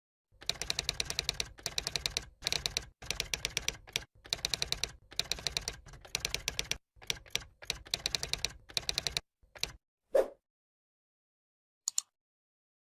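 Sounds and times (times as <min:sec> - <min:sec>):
rapid typing clicks: 0:00.4 - 0:09.8.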